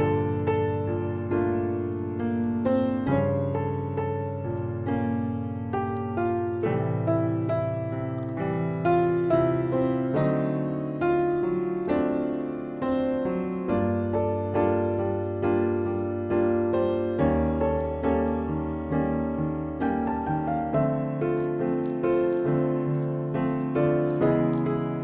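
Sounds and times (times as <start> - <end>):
gentle piano music: 0.0 - 25.0.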